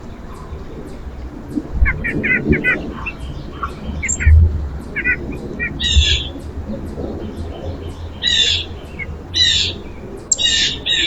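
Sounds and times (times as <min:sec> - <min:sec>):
low steady rumble: 0:00.0 - 0:11.0
songbird calls: 0:00.0 - 0:11.0.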